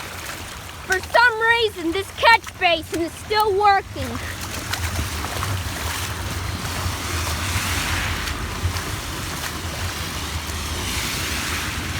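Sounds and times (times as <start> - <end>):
runoff rushing into drain: 0.0 - 11.9
wind rumbling on microphone: 2.4 - 11.9.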